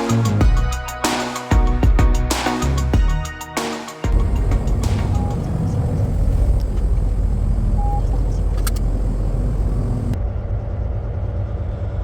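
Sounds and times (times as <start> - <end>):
truck engine and road rumble: 4.1 - 12.0.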